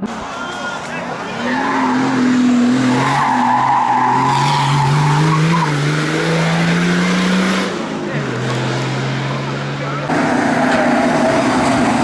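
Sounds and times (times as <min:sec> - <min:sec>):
tyres squealing: 0:00.2 - 0:05.9
race car engine under power: 0:00.9 - 0:12.0.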